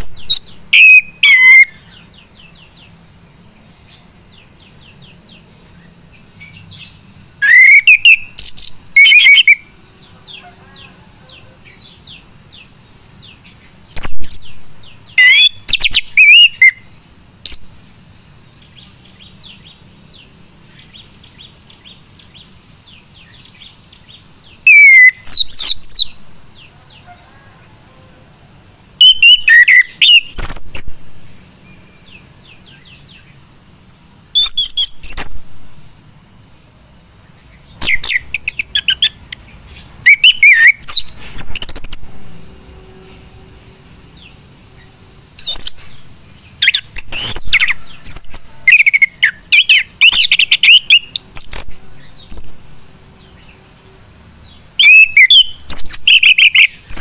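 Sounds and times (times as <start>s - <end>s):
thrush singing whistled song: 0.0s - 3.0s, 4.3s - 27.2s, 29.0s - 31.0s, 34.3s - 35.5s, 37.5s - 42.1s, 45.4s - 53.6s, 54.4s - 57.0s.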